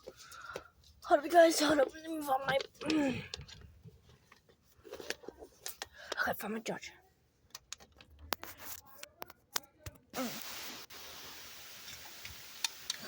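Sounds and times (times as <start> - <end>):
steady hiss: 10.2 - 13.0.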